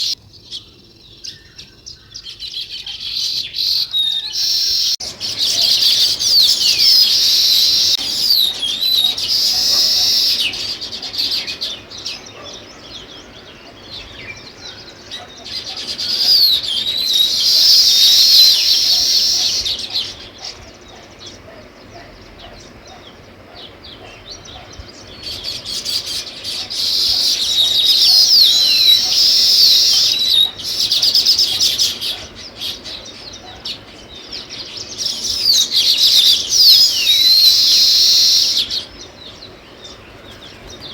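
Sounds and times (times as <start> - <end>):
sparrows chirping: 0.0 - 40.9.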